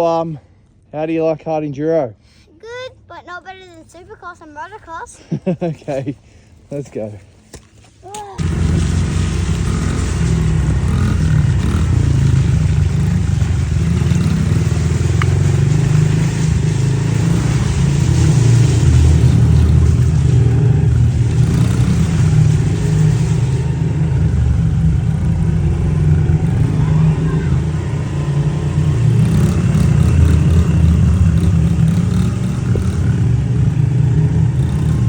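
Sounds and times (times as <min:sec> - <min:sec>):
motorbike engine revving: 0:08.4 - 0:35.0.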